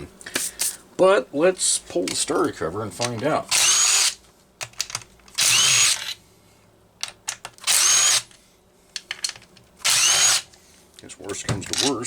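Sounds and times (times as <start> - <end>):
power drill whining: 3.5 - 4.2, 5.4 - 6.2, 7.7 - 8.3, 9.8 - 10.5.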